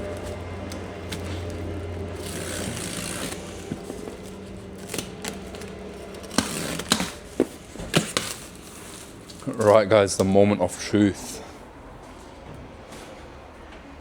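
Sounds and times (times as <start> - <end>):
cardboard rustling and scraping: 0.0 - 9.9
cardboard snapping: 2.2 - 9.5.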